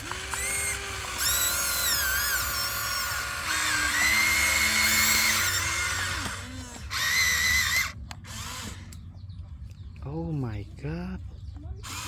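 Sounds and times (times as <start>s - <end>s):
small electric motor whining: 0.0s - 9.1s.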